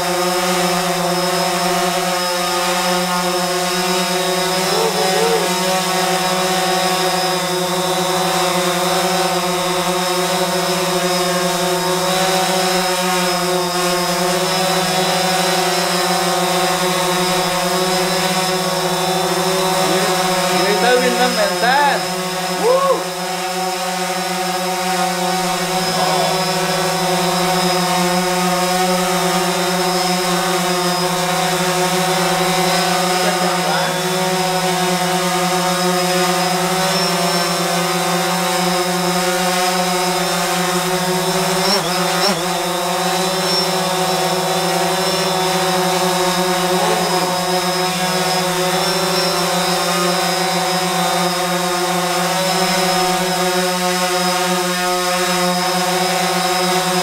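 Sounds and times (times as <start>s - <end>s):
drone propellers humming: 0.0s - 57.0s.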